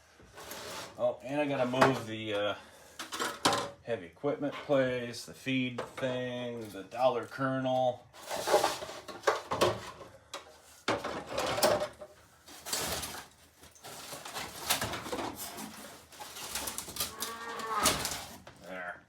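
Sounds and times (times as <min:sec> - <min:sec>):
pieces knocking and scraping: 0:03.0 - 0:03.8, 0:08.2 - 0:18.6.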